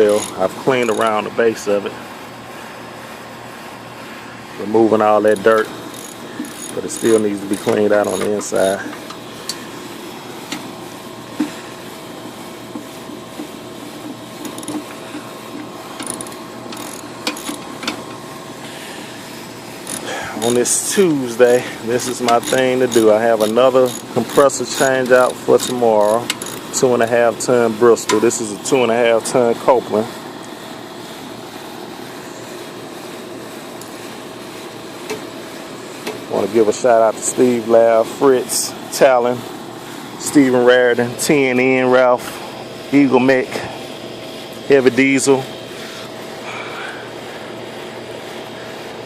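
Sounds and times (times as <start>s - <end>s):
machine hum with rattle: 0.0s - 49.0s
steady mechanical drone: 0.0s - 49.0s.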